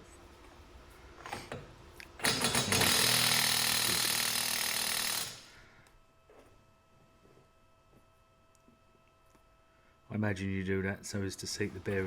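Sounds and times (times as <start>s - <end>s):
impact wrench hammering: 2.2s - 5.5s.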